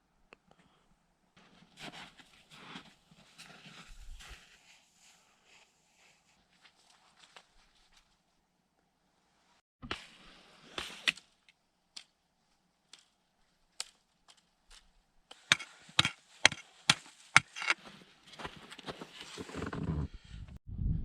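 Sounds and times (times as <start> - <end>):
scraping and handling noise: 15.3 - 20.0
axe chopping wood: 15.5 - 17.8.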